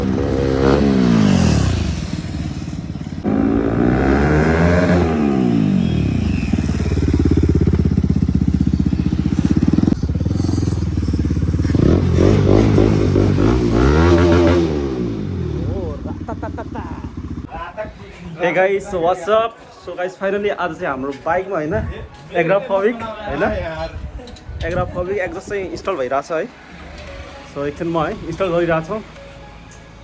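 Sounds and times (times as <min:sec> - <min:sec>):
motorcycle engine revving: 0:00.0 - 0:17.5.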